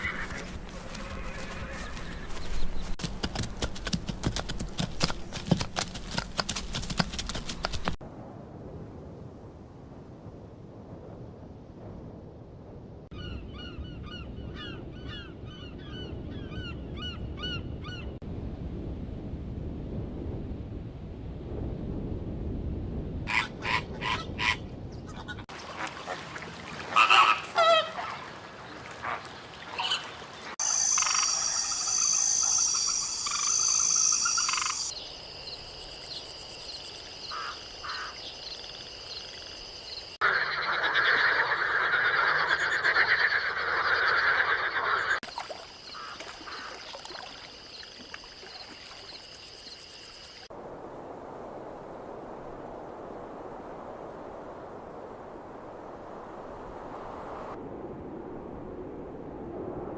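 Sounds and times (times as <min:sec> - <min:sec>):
frogs croaking: 0:29.1 - 0:50.5
dense frog chorus: 0:30.6 - 0:35.6, 0:37.2 - 0:50.5
frogs chirping: 0:30.6 - 0:50.5.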